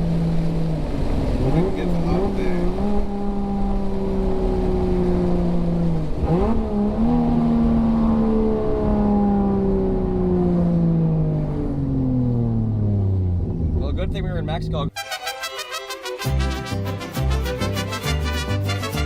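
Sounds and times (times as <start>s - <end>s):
car engine revving: 0.0s - 14.9s.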